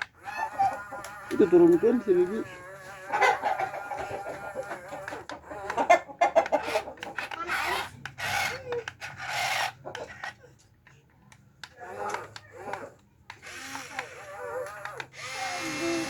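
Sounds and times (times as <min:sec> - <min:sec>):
chickens clucking: 0:00.1 - 0:07.5.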